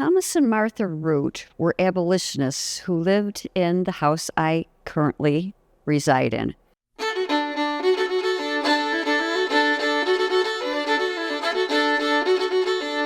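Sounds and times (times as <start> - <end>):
fiddle tune: 7.0 - 13.0.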